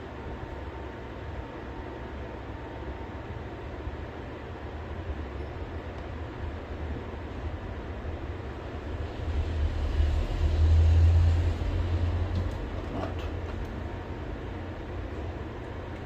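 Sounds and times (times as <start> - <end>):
steady hum and hiss: 0.0 - 16.0
deep low rumble: 8.6 - 13.5.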